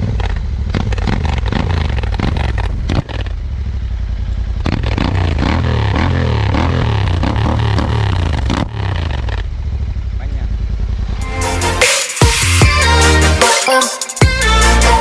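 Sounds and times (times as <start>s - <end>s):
motorcycle engine idling and revving: 0.0s - 13.2s.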